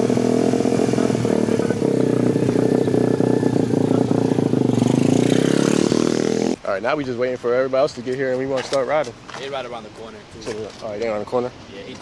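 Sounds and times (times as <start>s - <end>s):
dirt bike engine running: 0.0s - 6.6s.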